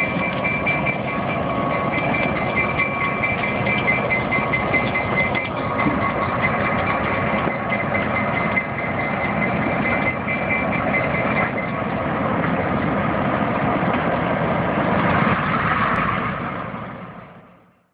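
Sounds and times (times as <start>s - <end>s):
high whine: 0.0s - 17.7s
diesel locomotive engine running: 0.0s - 17.9s.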